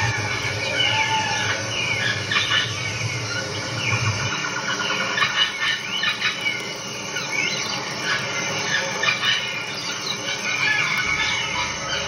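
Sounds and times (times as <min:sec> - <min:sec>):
birds chirping: 0:00.0 - 0:12.0
steady hiss: 0:00.1 - 0:12.0.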